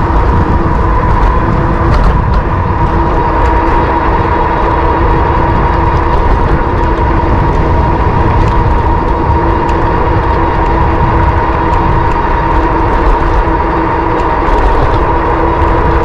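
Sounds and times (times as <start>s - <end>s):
electric motor whine: 0.0s - 16.0s
wind rumble on microphone: 0.0s - 16.0s.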